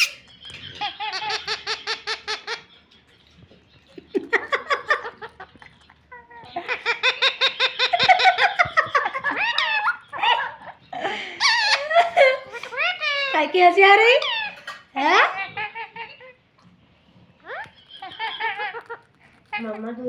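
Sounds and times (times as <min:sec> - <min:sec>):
parrot mimicking laughter: 0:00.0 - 0:02.7, 0:04.2 - 0:16.4, 0:17.4 - 0:19.7
parrot squeaky calls: 0:00.0 - 0:02.9, 0:06.1 - 0:16.4, 0:17.4 - 0:19.8.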